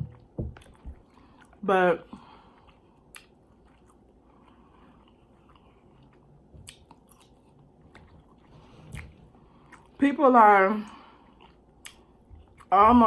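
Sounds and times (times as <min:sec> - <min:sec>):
chewing food: 0:02.2 - 0:10.0, 0:10.9 - 0:12.8.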